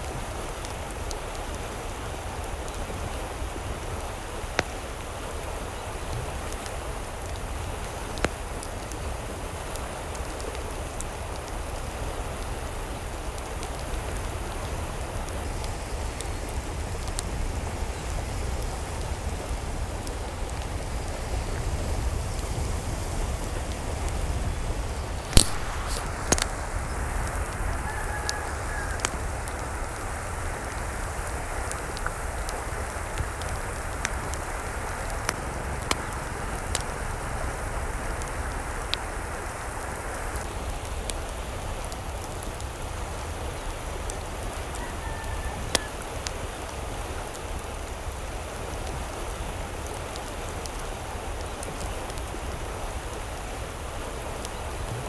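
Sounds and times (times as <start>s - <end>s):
steady rain falling: 0.0s - 55.0s
water drips ticking: 28.2s - 37.2s.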